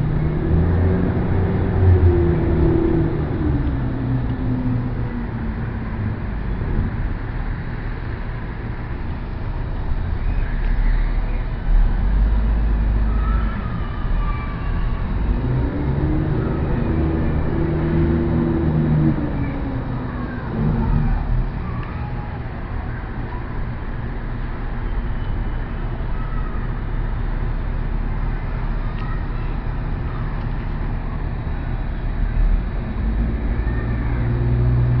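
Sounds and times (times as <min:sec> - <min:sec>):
passing vehicles rumbling: 0:00.0 - 0:35.0
faint high squeals: 0:10.1 - 0:27.1.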